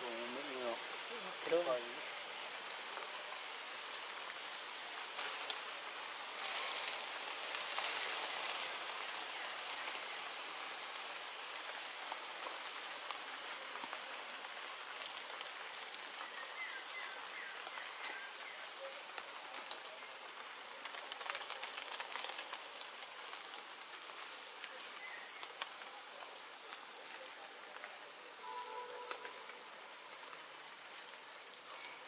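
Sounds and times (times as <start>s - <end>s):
rain on leaves: 0.0s - 32.0s.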